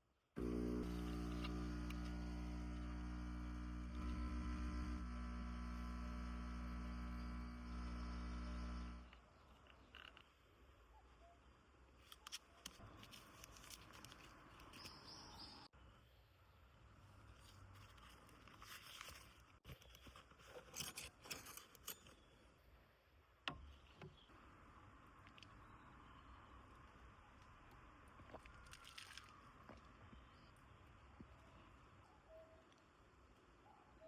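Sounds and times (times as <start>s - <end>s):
small clicks and rustles: 9.1s - 10.4s, 12.0s - 15.1s, 27.7s - 30.5s.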